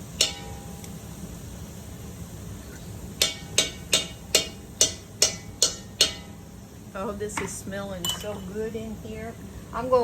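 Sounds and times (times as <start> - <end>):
metal spoon knocking on pot rim: 3.2 - 6.3.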